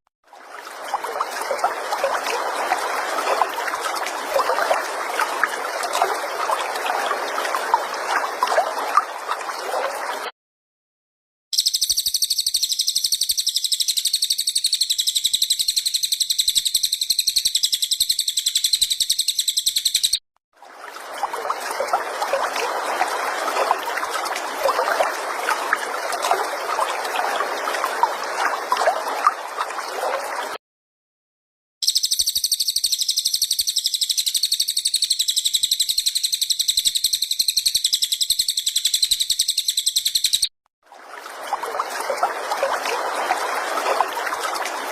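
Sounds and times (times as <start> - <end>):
buzzing high-pitched bird trill: 11.6 - 20.2.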